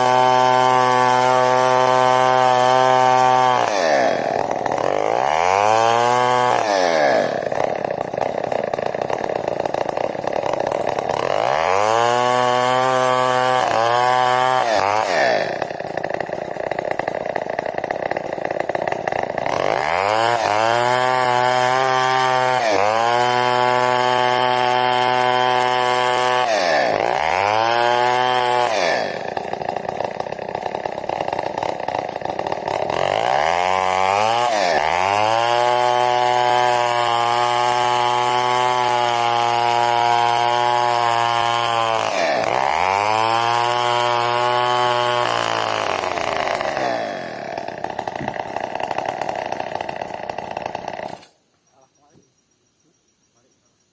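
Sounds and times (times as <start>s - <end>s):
chainsaw revving: 0.0s - 51.4s
chainsaw ripping timber: 0.0s - 51.4s.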